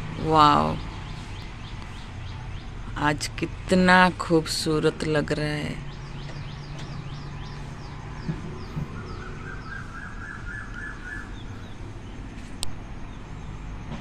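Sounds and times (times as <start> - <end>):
rapidly pulsing bird call: 0.0 - 3.0, 5.4 - 12.3
distant traffic rumble: 0.0 - 14.0
bird chirping high falling notes: 5.8 - 11.9.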